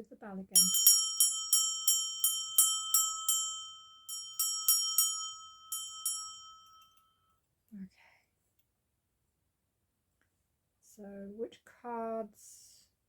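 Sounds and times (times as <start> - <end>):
bell ringing: 0.6 - 7.0.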